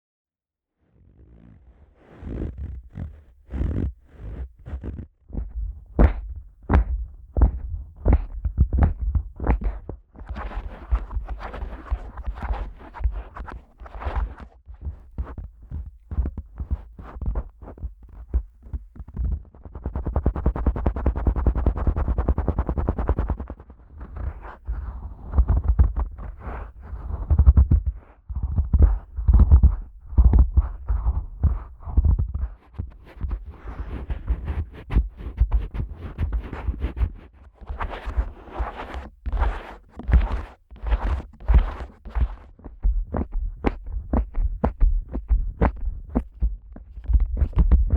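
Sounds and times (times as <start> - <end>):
fingers tapping on microphone: 2.5 - 47.9
dull low thumps: 5.4 - 9.9, 24.0 - 37.1, 39.1 - 47.9.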